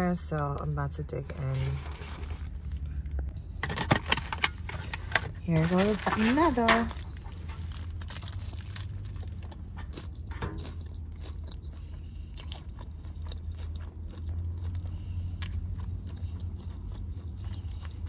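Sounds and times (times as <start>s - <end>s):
steady low hum: 0.0s - 18.0s
person biting and chewing: 6.9s - 18.0s.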